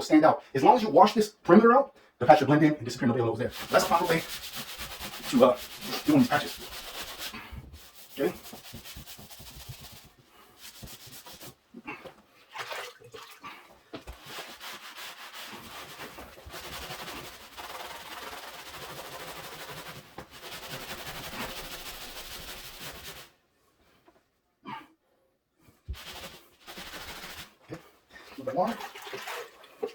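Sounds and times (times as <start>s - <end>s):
wet sponge scrubbing a wall: 3.5s - 12.8s, 13.4s - 23.4s, 25.7s - 27.9s.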